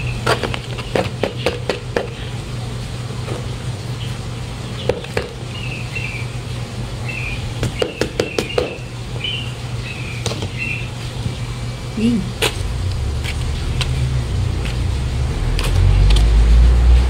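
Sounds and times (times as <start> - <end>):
steady low hum: 0.0 - 17.0
small birds chirping: 3.8 - 12.4.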